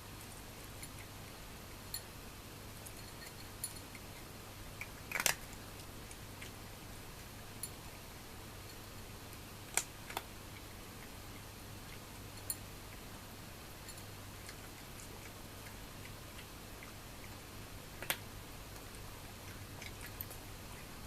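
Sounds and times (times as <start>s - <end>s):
steady low hum: 0.0s - 21.0s
kibble clicking against food bowl: 2.8s - 6.6s, 9.7s - 10.3s.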